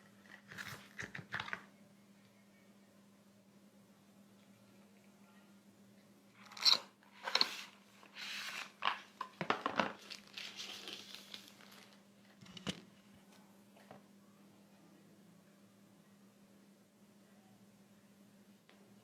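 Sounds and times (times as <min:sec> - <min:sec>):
plastic wrap and paper crinkling: 0:07.5 - 0:12.7.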